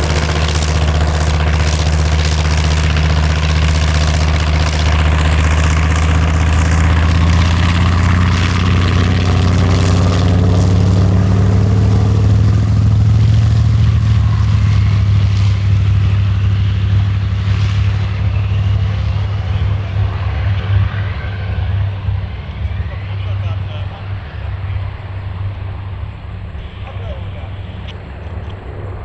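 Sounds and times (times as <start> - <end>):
aircraft radial engine droning: 0.0 - 29.0.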